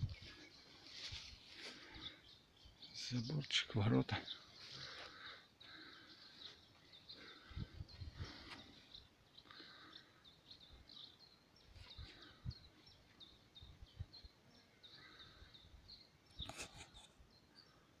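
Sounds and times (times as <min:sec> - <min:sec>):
small bird chirping: 0:00.0 - 0:17.9
rustle: 0:00.7 - 0:02.0.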